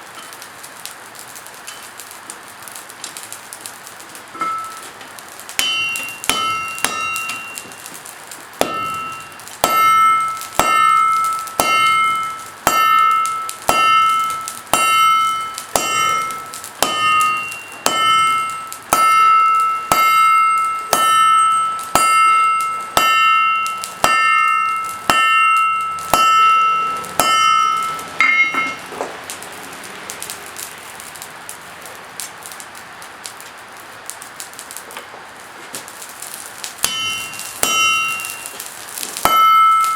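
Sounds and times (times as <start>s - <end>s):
hammer striking steel on anvil: 4.4s - 4.9s, 5.6s - 8.0s, 8.6s - 29.1s, 36.8s - 39.9s.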